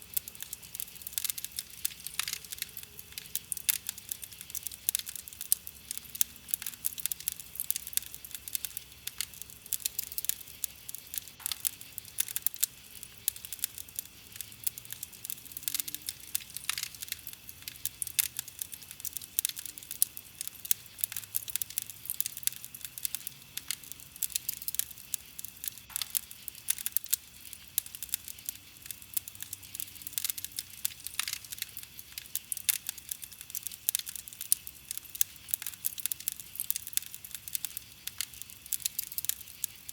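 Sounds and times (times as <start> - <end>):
campfire wood crackling: 0.0 - 39.9.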